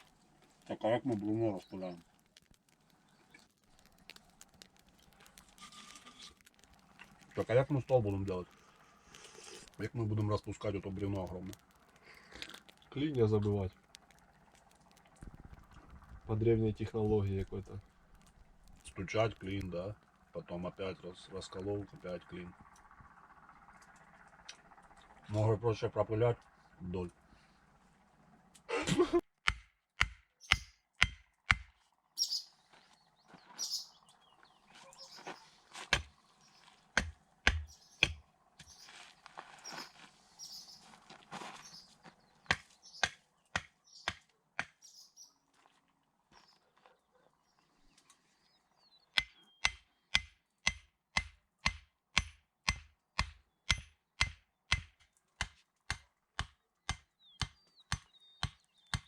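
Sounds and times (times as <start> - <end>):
faint birds chirping: 0.0 - 29.2, 30.2 - 59.0
hammer strikes: 29.4 - 31.8, 37.0 - 38.2, 49.2 - 59.0.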